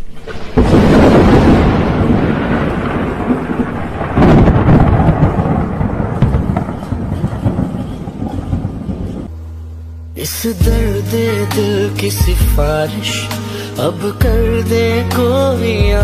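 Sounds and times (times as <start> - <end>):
thunder crack and rumble: 0.0 - 9.3.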